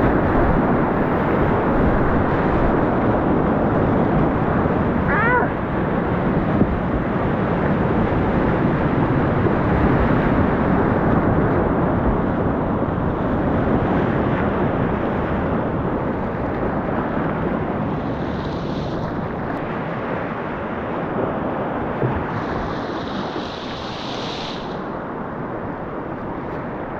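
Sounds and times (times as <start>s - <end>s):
rushing river whitewater: 0.0s - 26.9s.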